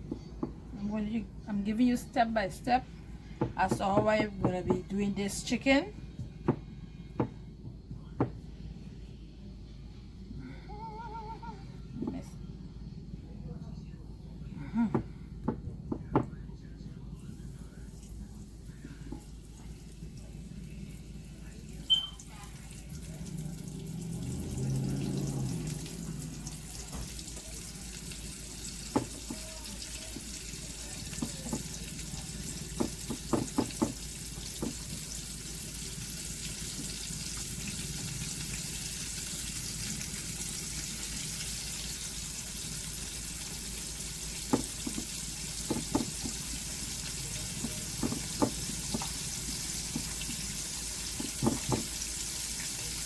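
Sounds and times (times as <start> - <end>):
chicken sizzling in hot oil: 18.5 - 53.0.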